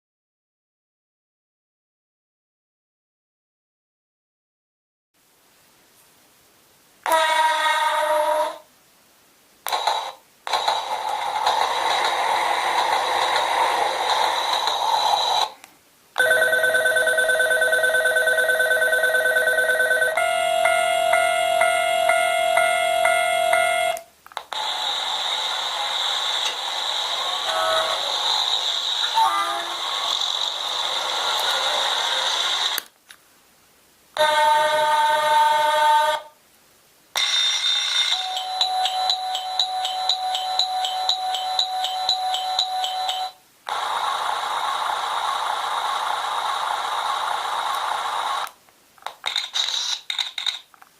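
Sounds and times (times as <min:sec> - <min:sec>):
electric train horn chord: 0:07.1 - 0:08.6, 0:34.2 - 0:36.2
station crowd noise hiss: 0:07.1 - 0:08.7, 0:09.7 - 0:15.7, 0:24.4 - 0:32.8, 0:43.7 - 0:48.5
electric bell ringing: 0:16.2 - 0:24.0, 0:37.2 - 0:43.4
pulsing electronic two-tone alarm: 0:16.2 - 0:24.1, 0:37.2 - 0:43.4.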